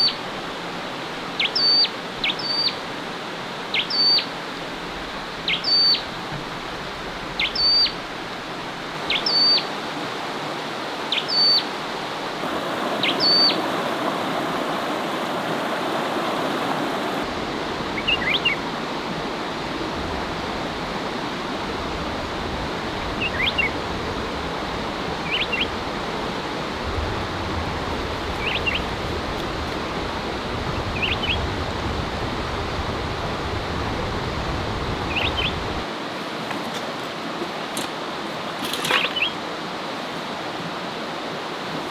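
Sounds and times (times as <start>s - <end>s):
birds calling: 9.1s - 9.7s, 11.1s - 11.7s, 12.4s - 17.3s, 28.0s - 30.0s, 35.1s - 35.7s, 38.9s - 39.4s.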